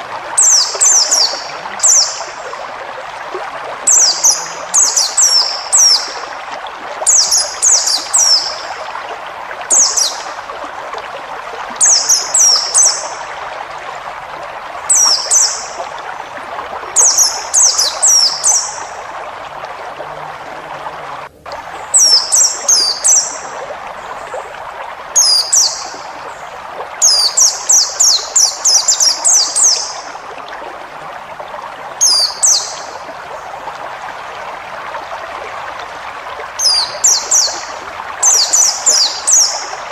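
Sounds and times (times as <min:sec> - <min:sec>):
running water: 0:00.0 - 0:39.9
small bird singing: 0:36.6 - 0:37.6.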